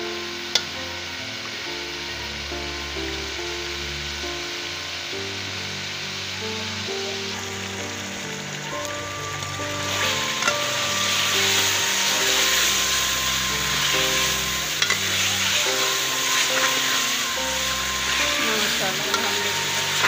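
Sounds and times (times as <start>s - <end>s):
background music with held notes: 0.0s - 20.0s
chicken sizzling in hot oil: 0.0s - 20.0s
spatula stirring: 9.9s - 20.0s.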